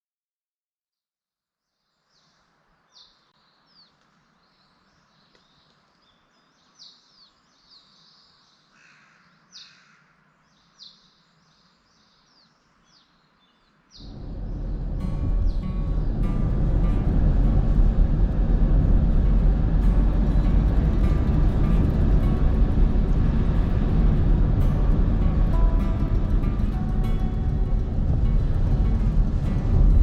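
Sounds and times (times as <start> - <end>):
faint steady hiss: 1.7 - 30.0
birds singing: 1.8 - 16.5.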